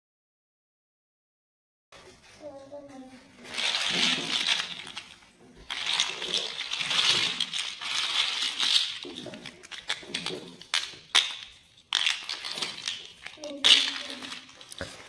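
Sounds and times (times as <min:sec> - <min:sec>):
plastic blocks clattering: 0:03.3 - 0:15.0.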